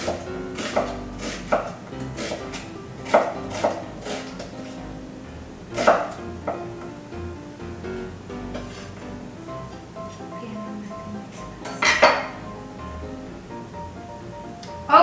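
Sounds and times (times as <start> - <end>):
knife striking cutting board: 0.0 - 4.5, 5.7 - 6.6
background music: 0.0 - 15.0.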